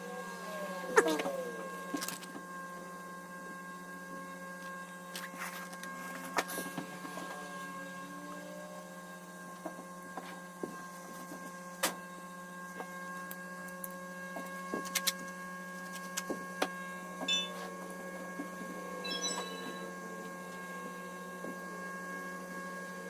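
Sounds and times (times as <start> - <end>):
electrical hum: 0.0 - 23.0
steady high tones: 17.3 - 17.6, 19.0 - 20.0
high chirping: 19.1 - 19.9.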